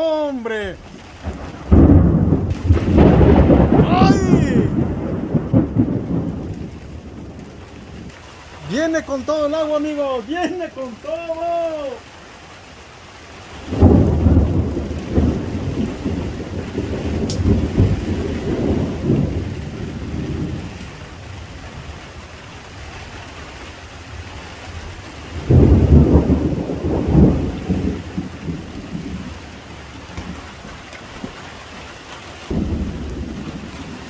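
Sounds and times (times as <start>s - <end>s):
heavy rain: 0.0s - 34.0s
thunder rumbling: 0.7s - 11.0s, 13.6s - 22.2s, 25.3s - 30.7s, 32.5s - 34.0s.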